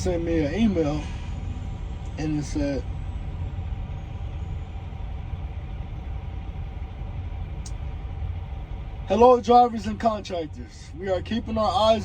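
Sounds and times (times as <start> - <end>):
faint hum tones: 0.0 - 12.0
truck engine rumbling: 0.0 - 12.0
light tick: 7.6 - 7.8.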